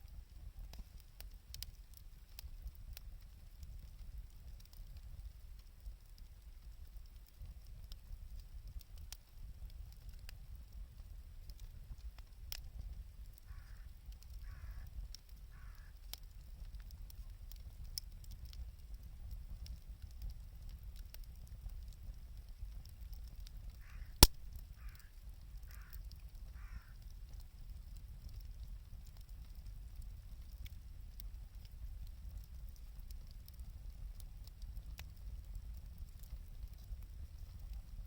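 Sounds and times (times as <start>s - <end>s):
bonfire crackling: 0.0s - 38.0s
sharp loud pop: 24.2s - 24.5s.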